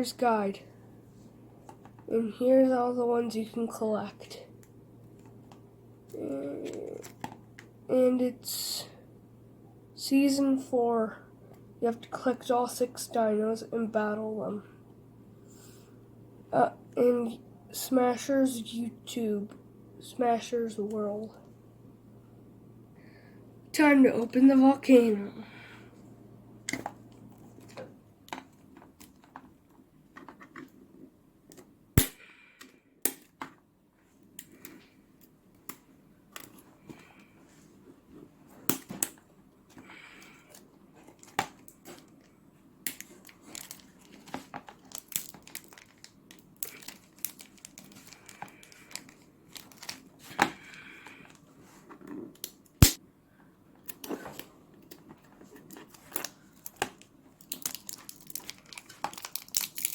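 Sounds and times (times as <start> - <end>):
sharp plastic snaps and clicks: 31.5 - 33.5, 52.4 - 53.0
packaging crinkling and tearing: 42.9 - 51.4, 55.6 - 59.9.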